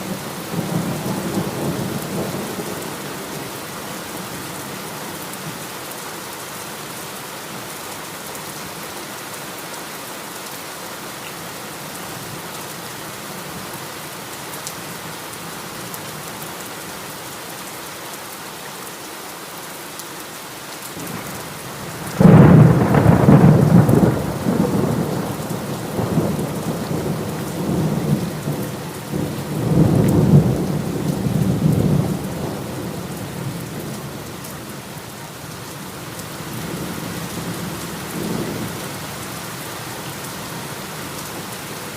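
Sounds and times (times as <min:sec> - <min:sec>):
heavy rain falling: 0:00.0 - 0:41.9
thunder rumbling: 0:21.9 - 0:34.2.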